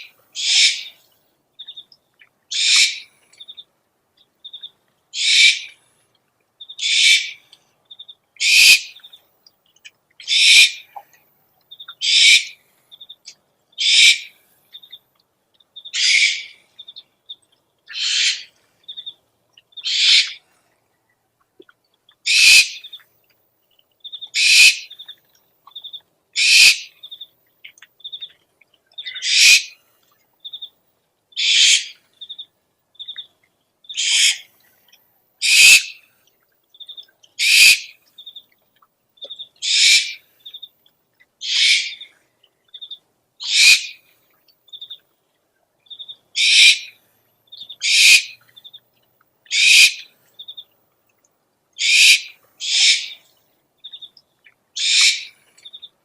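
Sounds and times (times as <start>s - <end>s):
owl hissing screeches: 0.4s - 0.9s, 2.5s - 3.0s, 5.2s - 5.7s, 6.8s - 7.4s, 8.4s - 8.9s, 10.2s - 10.8s, 12.0s - 12.6s, 13.8s - 14.3s, 16.0s - 16.6s, 17.9s - 18.5s, 19.8s - 20.4s, 22.3s - 22.8s, 24.4s - 24.9s, 26.4s - 26.9s, 29.2s - 29.8s, 31.4s - 32.0s, 34.0s - 34.5s, 35.4s - 36.0s, 37.4s - 37.9s, 39.6s - 40.2s, 41.4s - 42.0s, 43.4s - 44.0s, 46.4s - 46.9s, 47.8s - 48.4s, 49.5s - 50.1s, 51.8s - 53.2s, 54.8s - 55.3s.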